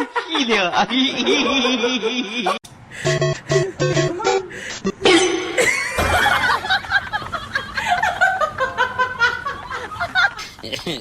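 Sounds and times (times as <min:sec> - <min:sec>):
people laughing: 0:00.0 - 0:02.6, 0:05.6 - 0:11.0.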